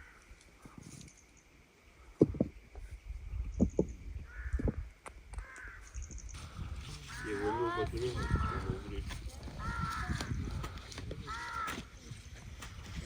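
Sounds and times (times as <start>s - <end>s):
crows cawing: 0.0s - 0.8s, 4.2s - 4.8s, 5.4s - 6.0s, 7.0s - 12.0s.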